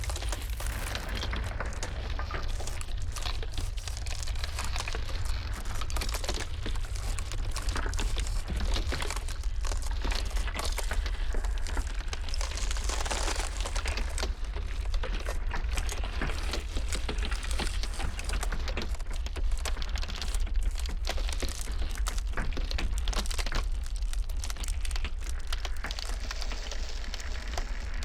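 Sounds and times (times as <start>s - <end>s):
deep rumble: 0.0s - 20.0s
ice cracking and crackling: 0.0s - 28.0s.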